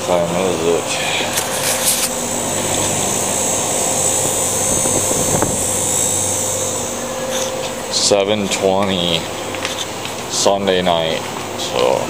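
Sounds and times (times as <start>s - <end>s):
mechanical drone with whooshing hiss: 0.0s - 12.0s.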